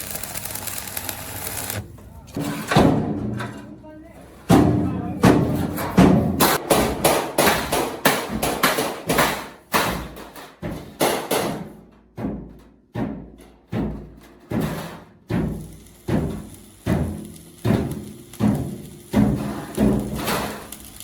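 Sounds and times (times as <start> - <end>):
hammer blows on sheet steel: 4.5 - 20.7.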